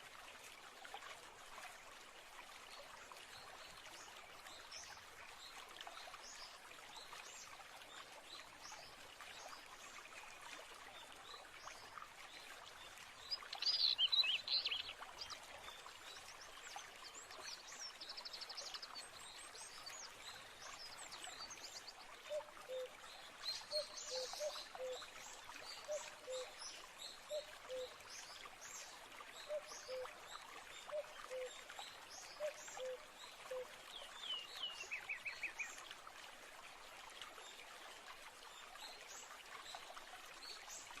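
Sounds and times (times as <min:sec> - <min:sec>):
stream trickling: 0:00.0 - 0:41.0
birds singing and calling: 0:13.6 - 0:14.9.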